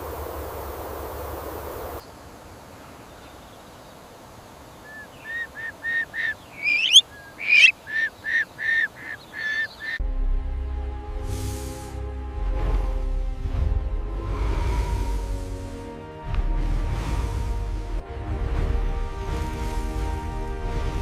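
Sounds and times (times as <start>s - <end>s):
bird honking calls: 4.8s - 10.0s
bird shrieks rising in pitch: 4.9s - 10.0s
music: 10.0s - 21.0s.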